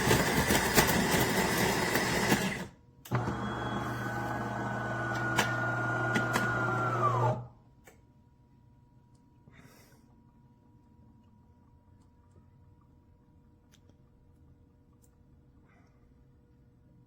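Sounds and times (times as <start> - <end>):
espresso machine motor humming: 3.2 - 7.4.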